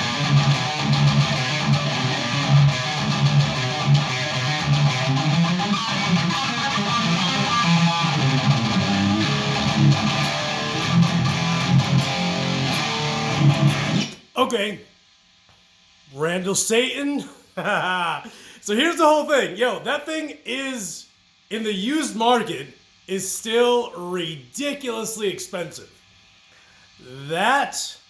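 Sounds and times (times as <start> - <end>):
distorted electric guitar riff: 0.0 - 14.2.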